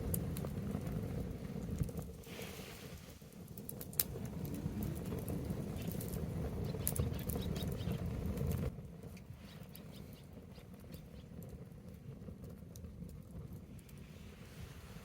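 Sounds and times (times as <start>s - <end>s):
bonfire crackling with pops: 0.0s - 15.0s
low rumbling noise: 3.9s - 9.4s, 12.9s - 15.0s.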